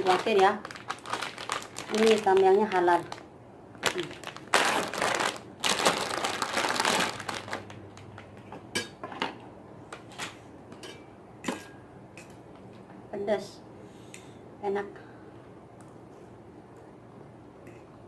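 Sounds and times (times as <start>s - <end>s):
plastic packet crinkling: 0.0s - 8.3s.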